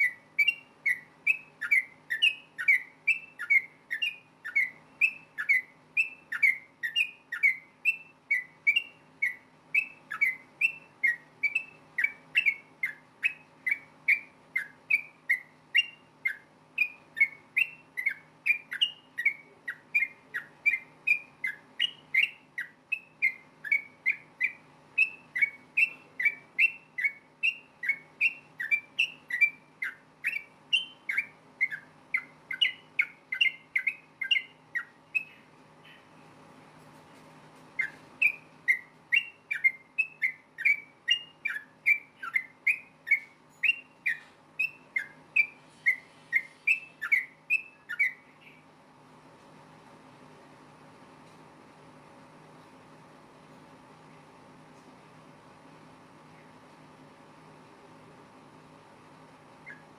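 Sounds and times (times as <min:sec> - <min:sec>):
bird singing whistled notes: 0:00.0 - 0:36.2, 0:37.8 - 0:48.7, 0:59.6 - 0:59.9
faint steady hum: 0:00.0 - 0:59.9.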